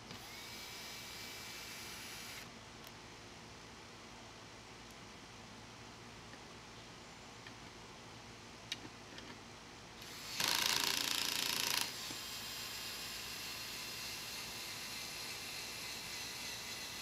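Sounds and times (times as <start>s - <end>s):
power drill driving screw: 10.0s - 17.0s.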